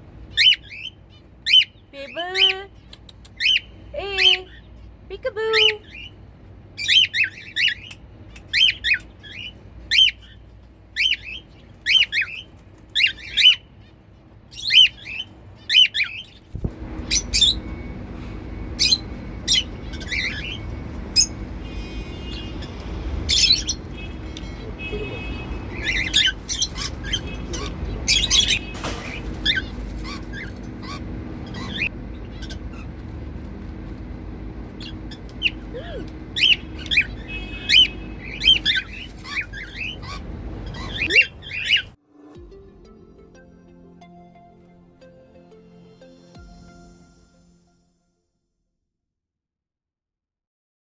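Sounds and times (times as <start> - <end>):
cockatiels chirping: 0.3 - 1.8, 6.8 - 10.4, 11.0 - 17.7, 18.8 - 21.4, 22.4 - 25.1, 25.7 - 33.0, 34.8 - 41.9
steady low hum: 16.3 - 47.0.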